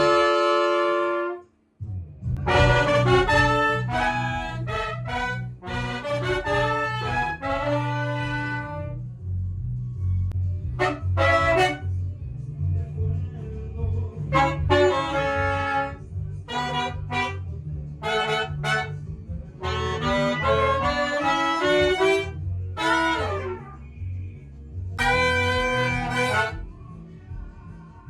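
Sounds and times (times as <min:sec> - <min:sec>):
pulsing bass line: 0:00.0 - 0:01.1, 0:01.8 - 0:27.8
horn section playing: 0:00.0 - 0:01.5, 0:02.4 - 0:09.0, 0:10.8 - 0:11.9, 0:14.3 - 0:23.8, 0:25.0 - 0:26.7.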